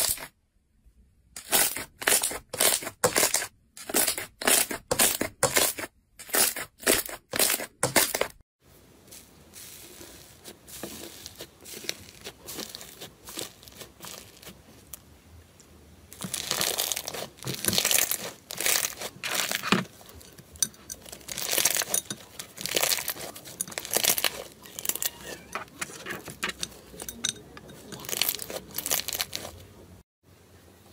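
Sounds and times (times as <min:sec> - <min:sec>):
slime squishing: 0:09.1 - 0:29.8
slime crinkling crackle: 0:09.6 - 0:15.0, 0:16.2 - 0:20.0, 0:21.0 - 0:25.4, 0:28.0 - 0:29.6.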